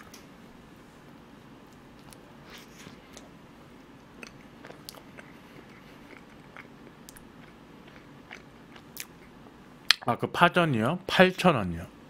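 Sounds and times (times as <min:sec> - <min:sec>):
person chewing: 0:04.0 - 0:10.0
mouth clicks and smacks: 0:09.9 - 0:10.1.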